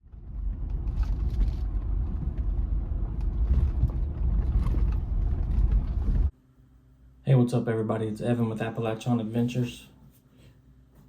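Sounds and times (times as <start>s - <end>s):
vehicle engine low rumble: 0.0s - 6.3s.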